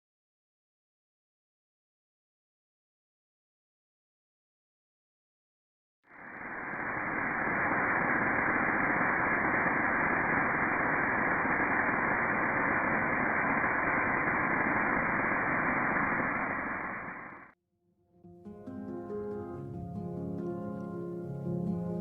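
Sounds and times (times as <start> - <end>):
waterfall rushing: 6.2 - 17.5.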